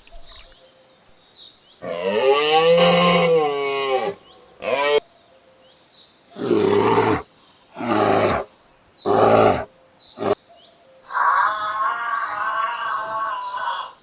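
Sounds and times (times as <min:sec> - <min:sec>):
long higher animal call: 0:06.4 - 0:07.2, 0:07.8 - 0:08.5, 0:09.1 - 0:10.4, 0:11.0 - 0:14.0
loud harsh animal calls: 0:06.4 - 0:07.2, 0:07.8 - 0:08.5, 0:09.1 - 0:10.4, 0:11.1 - 0:14.0.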